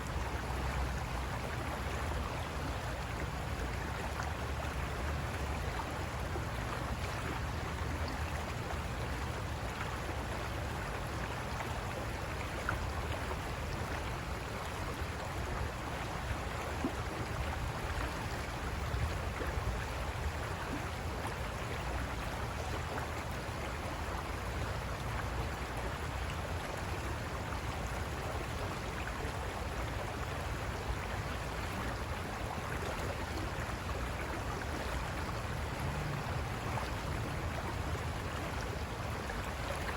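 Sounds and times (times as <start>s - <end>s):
river rushing over rocks: 27.0s - 39.9s.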